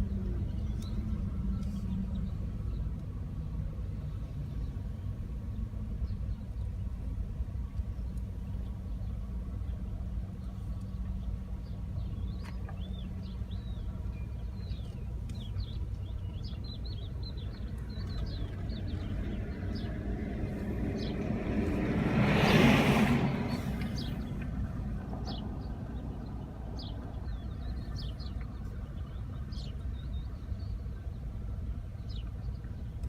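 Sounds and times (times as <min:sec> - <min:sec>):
birds chirping: 0:00.0 - 0:33.0
low outdoor rumble: 0:00.0 - 0:33.0
vehicle passing close: 0:17.8 - 0:27.5.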